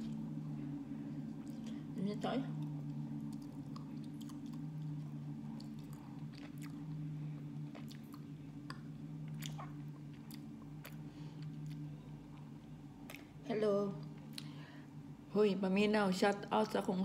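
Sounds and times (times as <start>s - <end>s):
steady low hum: 0.0s - 17.0s
chewing soft food: 2.5s - 13.4s.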